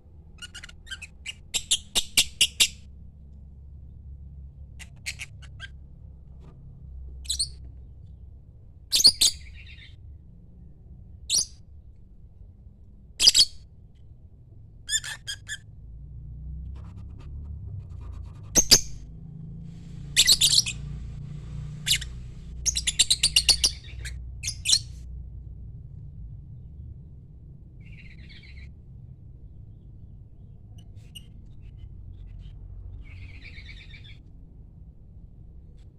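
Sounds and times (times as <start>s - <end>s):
bird shrill chirps and squawks: 0.4s - 2.8s, 7.2s - 7.6s, 8.9s - 10.0s, 11.3s - 11.6s, 13.2s - 13.6s, 14.9s - 15.6s, 18.6s - 19.0s, 20.2s - 20.9s, 21.8s - 25.0s, 27.8s - 28.7s, 33.0s - 34.2s.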